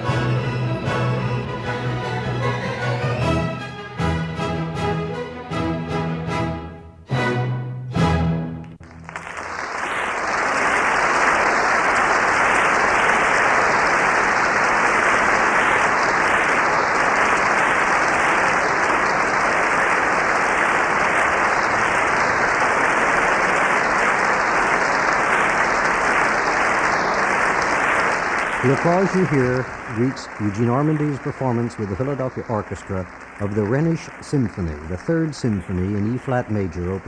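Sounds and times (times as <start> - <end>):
audience applauding: 8.6 - 37.0.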